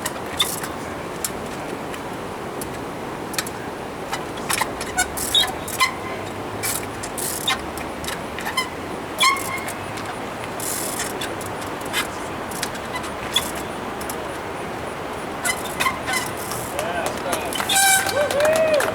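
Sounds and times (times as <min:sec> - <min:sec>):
brief high squeaks: 0:08.4 - 0:09.8, 0:15.4 - 0:16.7, 0:17.6 - 0:18.2
bicycle knocks and clicks: 0:15.4 - 0:18.1.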